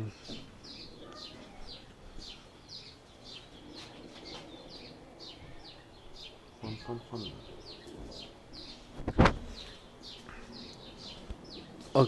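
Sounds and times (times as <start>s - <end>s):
small bird chirping: 0.0s - 12.0s.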